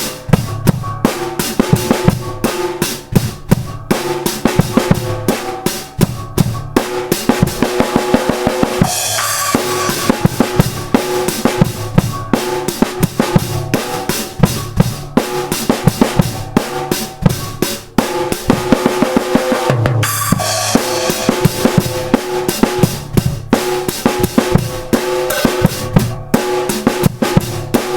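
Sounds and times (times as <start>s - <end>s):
bass drum and snare beat: 0.0s - 27.9s
crash cymbal: 8.8s - 10.4s, 20.0s - 21.8s
steady pitched notes: 8.8s - 10.9s, 19.9s - 22.2s.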